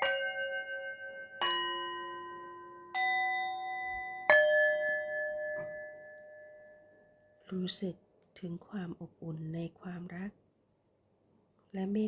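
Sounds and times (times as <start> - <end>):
struck bell tones: 0.0 - 7.5.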